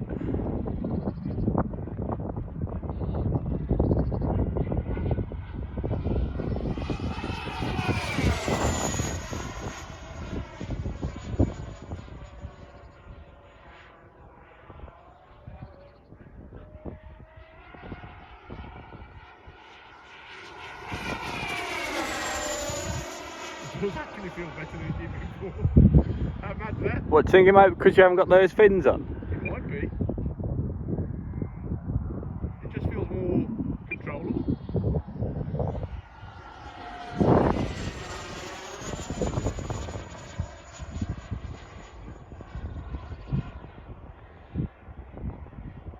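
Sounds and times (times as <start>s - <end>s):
wind noise on microphone: 0.0s - 19.8s, 20.6s - 45.9s
model jet motor whining: 4.5s - 27.4s, 34.4s - 44.5s
wind thumping on microphone: 25.0s - 27.2s, 29.0s - 36.4s.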